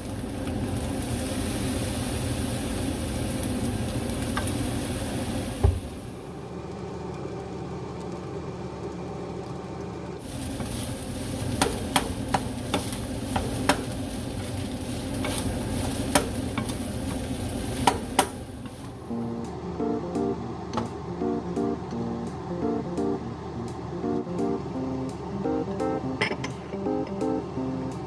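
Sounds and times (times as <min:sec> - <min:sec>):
steady hiss: 0:00.0 - 0:06.4, 0:10.2 - 0:28.0
thump: 0:05.6 - 0:05.8.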